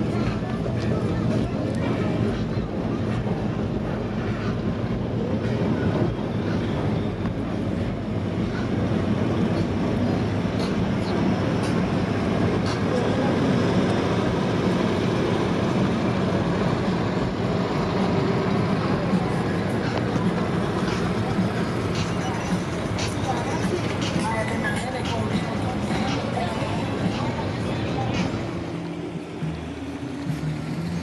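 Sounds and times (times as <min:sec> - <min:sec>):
car engines running: 0:00.0 - 0:31.0
hubbub of voices: 0:00.0 - 0:31.0.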